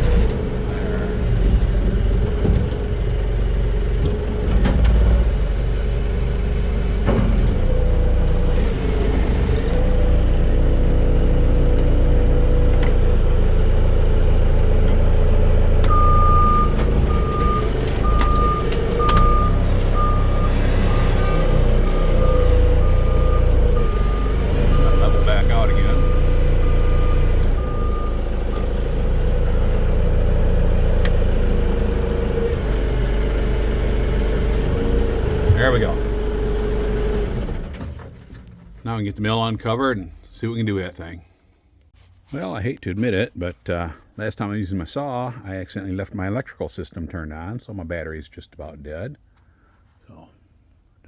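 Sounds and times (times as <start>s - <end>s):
heavy machine engine running: 0.0s - 38.8s
reversing alarm beeping: 15.8s - 29.6s.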